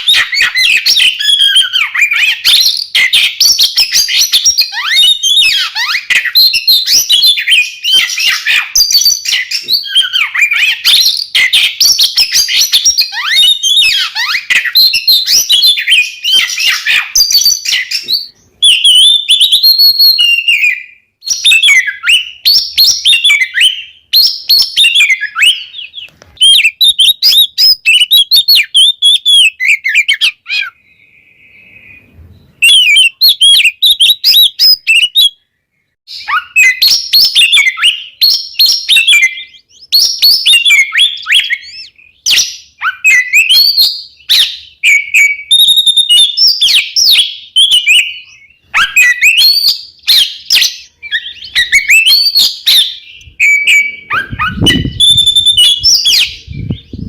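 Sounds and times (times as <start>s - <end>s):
magpie-robins singing: 0.0s - 35.4s, 36.1s - 57.0s.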